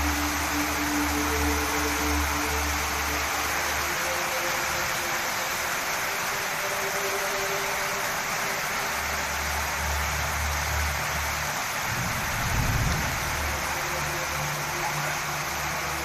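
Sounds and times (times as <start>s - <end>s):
heavy rain and hail: 0.0s - 16.0s
low rumble: 11.8s - 13.8s.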